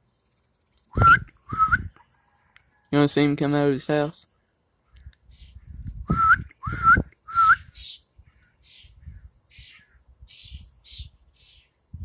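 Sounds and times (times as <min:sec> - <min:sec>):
person whistling rising notes: 0:01.0 - 0:01.9, 0:06.1 - 0:07.7.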